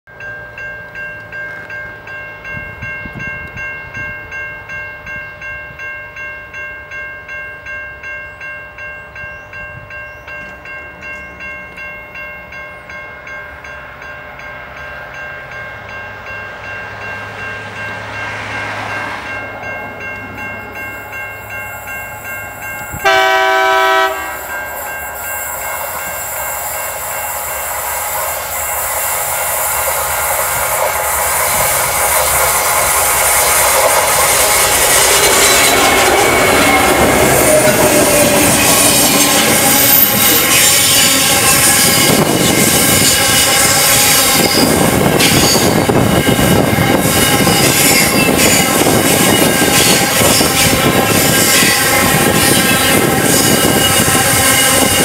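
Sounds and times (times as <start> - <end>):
crossing bell ringing: 0.1 - 55.0
train engine and wagons: 0.1 - 55.0
train horn blast: 22.9 - 24.9, 33.3 - 55.0.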